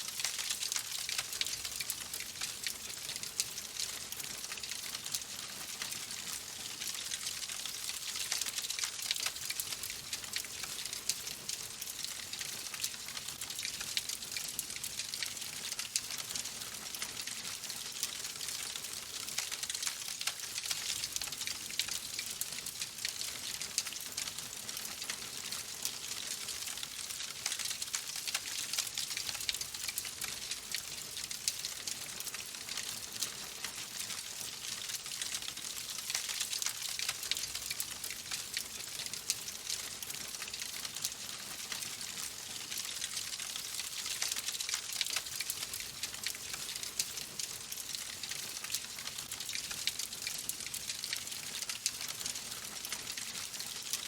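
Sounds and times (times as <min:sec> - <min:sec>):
fireplace fire crackling: 0:00.0 - 0:05.2, 0:17.6 - 0:47.1, 0:47.7 - 0:53.7.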